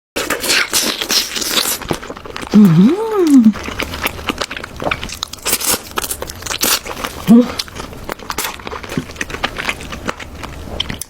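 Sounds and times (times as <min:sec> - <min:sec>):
crunching of crisp food being chewed: 0:00.2 - 0:11.0
person humming: 0:02.5 - 0:03.6, 0:07.3 - 0:07.6.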